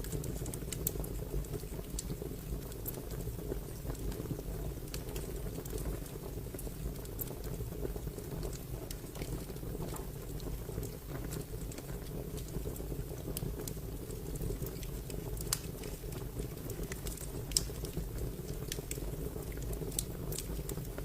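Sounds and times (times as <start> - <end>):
fire crackling: 0.0 - 21.0
fire pops and snaps: 0.0 - 21.0.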